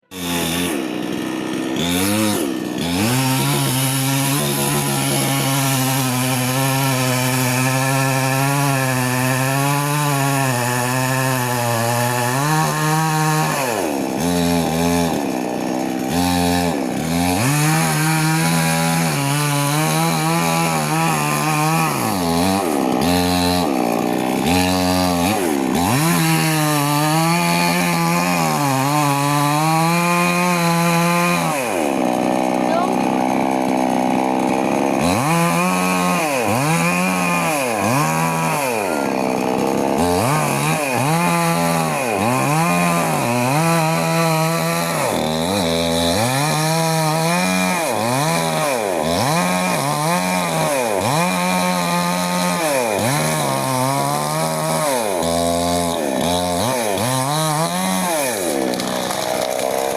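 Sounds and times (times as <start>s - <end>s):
chainsaw cutting tree: 0.0s - 59.9s.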